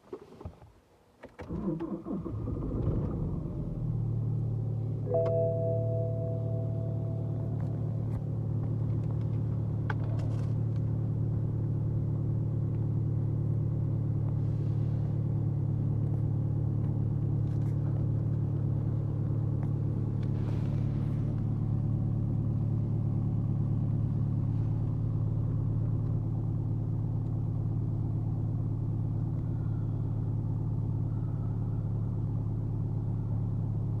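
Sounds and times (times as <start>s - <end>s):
diesel engine idling: 1.6s - 34.0s.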